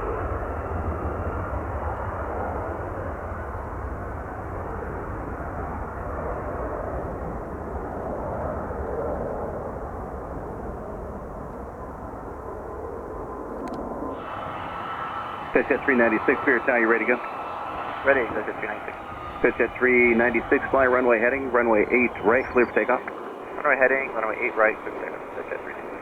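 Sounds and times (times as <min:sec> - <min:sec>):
airplane engine drone: 0:00.0 - 0:26.0.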